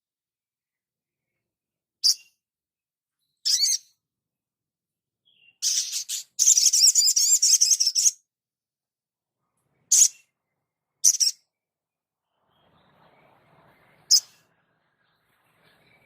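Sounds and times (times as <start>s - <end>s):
songbird chirping and twittering: 1.2s - 2.4s, 3.2s - 4.1s, 5.2s - 8.3s, 9.5s - 16.0s.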